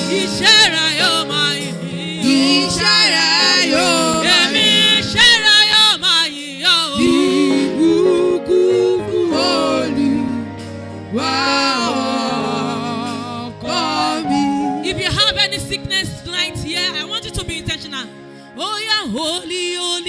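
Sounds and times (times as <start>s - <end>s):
person singing gospel: 0.0s - 20.0s
low sustained accompaniment: 7.8s - 18.6s.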